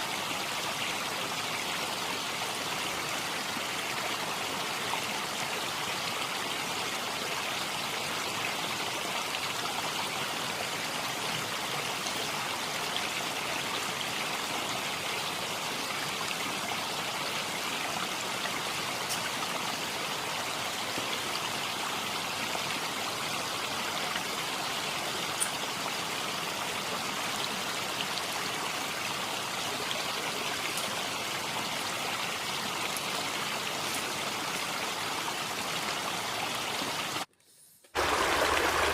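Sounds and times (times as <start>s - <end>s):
rushing water hiss: 38.0s - 38.9s.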